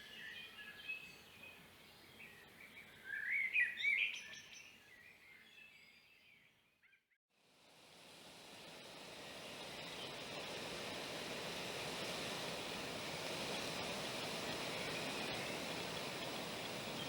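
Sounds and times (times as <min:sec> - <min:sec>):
steady hiss: 0:07.4 - 0:17.0.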